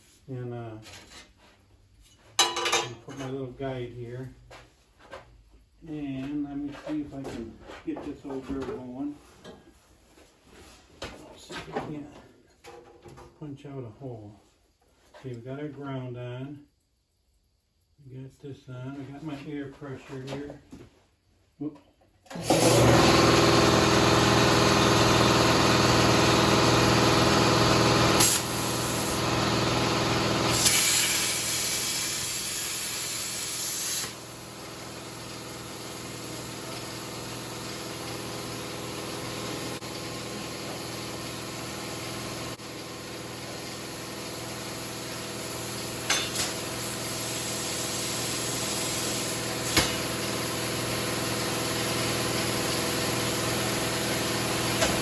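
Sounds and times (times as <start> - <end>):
plasma cutter hissing: 28.2 - 29.2, 30.5 - 34.3, 45.7 - 50.2.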